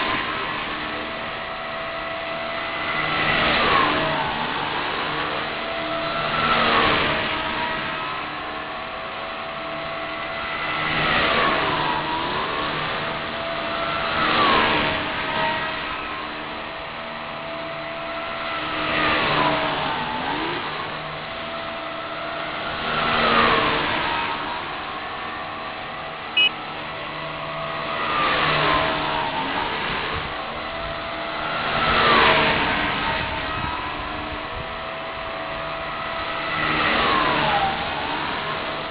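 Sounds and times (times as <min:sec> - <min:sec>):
rc helicopter rotor whine: 0:00.0 - 0:38.9.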